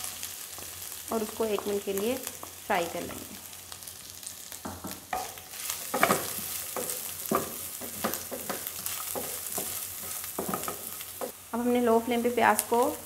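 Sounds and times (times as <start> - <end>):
onion and chicken sizzling in oil: 0.0 - 13.0
wooden spatula scraping pan: 5.2 - 11.3.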